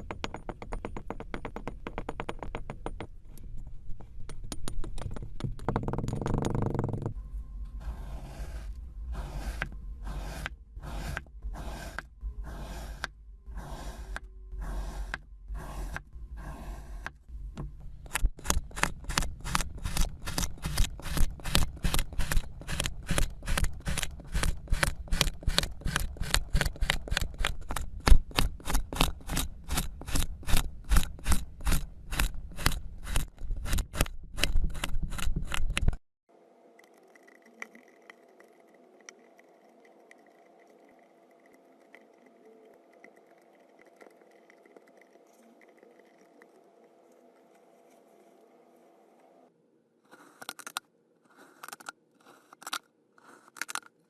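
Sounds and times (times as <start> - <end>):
rhythmic scraping strokes: 7.6 - 17.5.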